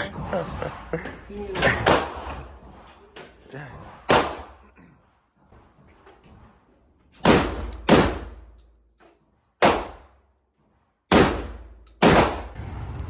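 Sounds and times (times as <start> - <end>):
shotgun shots echoing: 7.2 - 8.4, 11.1 - 12.6.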